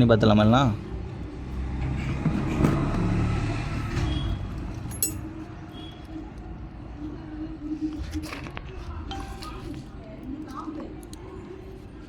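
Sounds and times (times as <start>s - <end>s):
vehicle engine passing: 0.8s - 4.9s.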